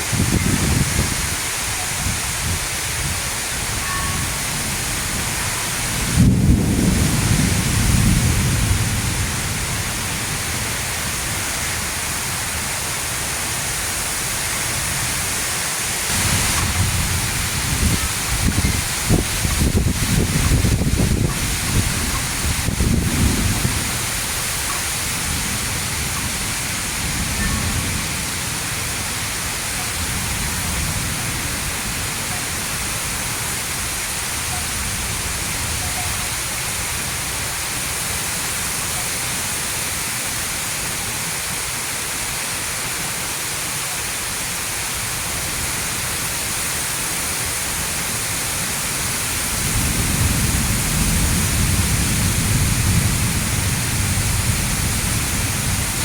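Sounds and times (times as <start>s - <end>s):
thunder rumbling: 0.0s - 12.0s, 16.1s - 33.9s, 49.4s - 56.0s
heavy rain falling: 0.0s - 56.0s.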